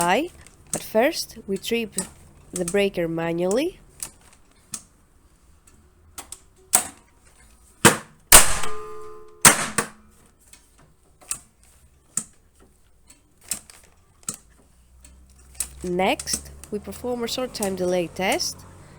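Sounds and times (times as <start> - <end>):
light mechanical clicks: 0.0 - 7.6, 10.4 - 18.9
circuit breaker mechanism snapping: 7.9 - 10.1.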